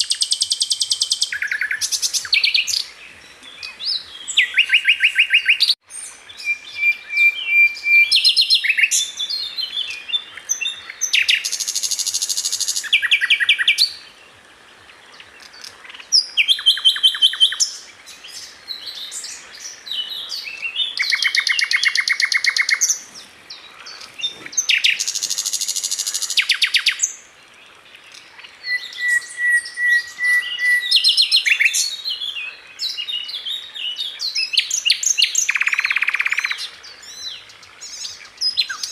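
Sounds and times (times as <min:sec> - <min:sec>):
long whistled bird notes: 0:00.0 - 0:14.1, 0:28.6 - 0:38.9.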